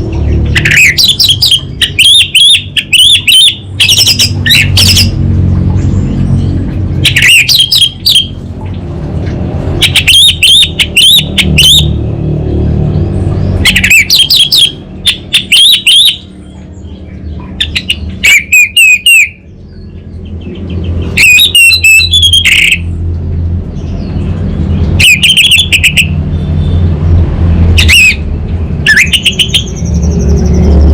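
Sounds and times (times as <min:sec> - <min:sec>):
steady low hum: 0:00.0 - 0:30.9
thrush singing: 0:09.6 - 0:23.1.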